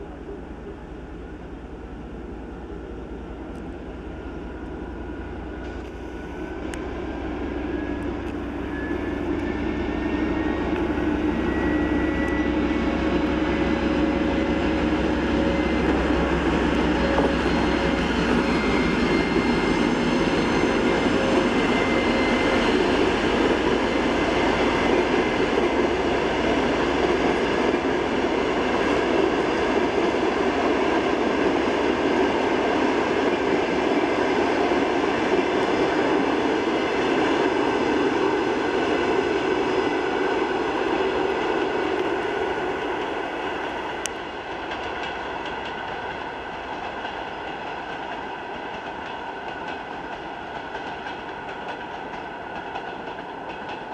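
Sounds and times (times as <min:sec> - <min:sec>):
train wheels clickety-clack: 0:15.4 - 0:40.4, 0:41.1 - 0:53.9.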